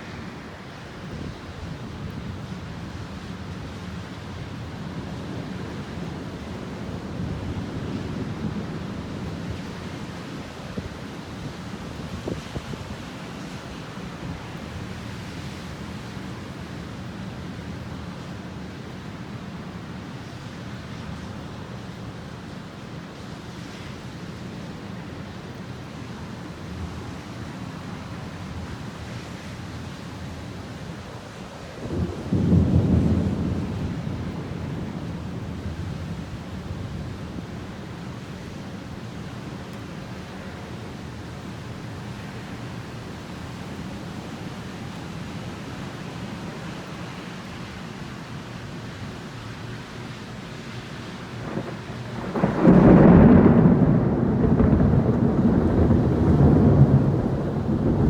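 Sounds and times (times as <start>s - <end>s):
rain: 0.0s - 58.0s
wind: 0.0s - 58.0s
low thunder rumble: 31.8s - 37.8s, 51.3s - 58.0s
rain hissing: 51.1s - 58.0s.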